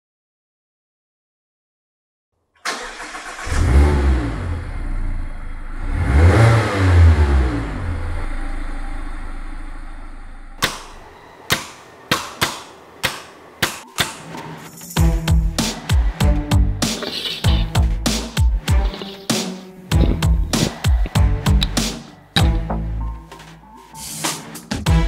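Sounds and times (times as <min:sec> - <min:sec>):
car engine starting and revving: 0:02.6 - 0:10.6.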